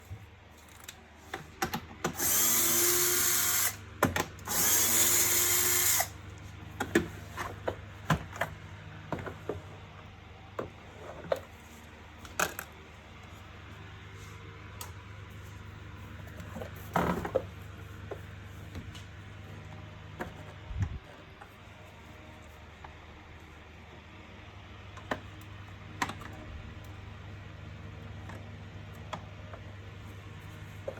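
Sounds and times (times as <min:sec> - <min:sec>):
electric drill running: 0:02.1 - 0:03.8, 0:04.4 - 0:06.2.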